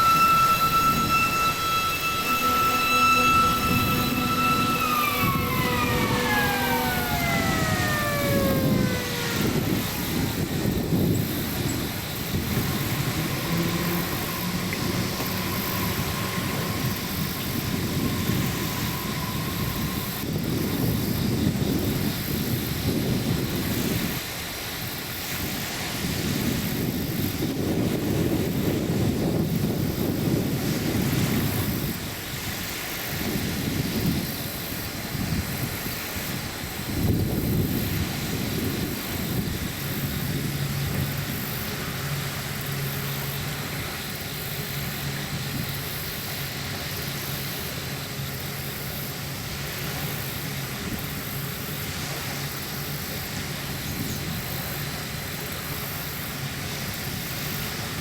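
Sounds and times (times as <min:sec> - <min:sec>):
train air horn: 0:00.0 - 0:22.1, 0:37.8 - 0:45.6
train rumbling by: 0:00.0 - 0:58.0.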